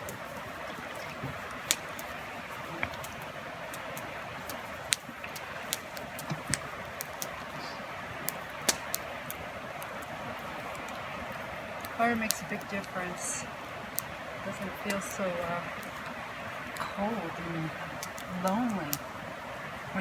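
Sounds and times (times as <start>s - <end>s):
campfire crackling and popping: 0.0s - 20.0s
fire hiss: 0.0s - 20.0s.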